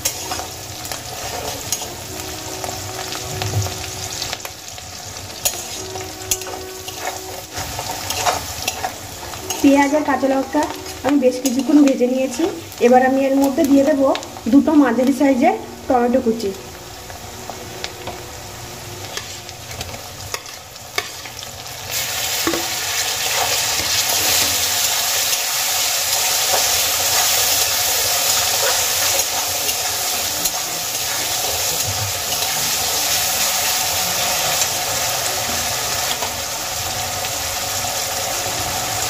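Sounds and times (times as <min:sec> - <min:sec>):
metal spatula stirring and scraping: 0:00.0 - 0:03.2, 0:05.3 - 0:12.7, 0:19.0 - 0:36.4
tomatoes sizzling in hot oil: 0:00.0 - 0:39.0.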